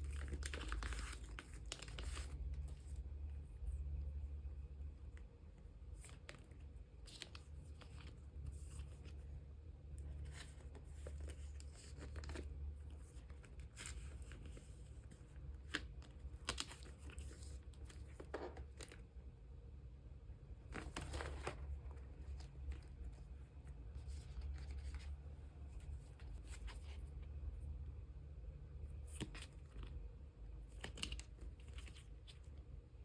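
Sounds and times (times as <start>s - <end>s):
plastic sleeves rustling: 0.0s - 19.3s, 20.5s - 27.5s, 28.9s - 33.0s.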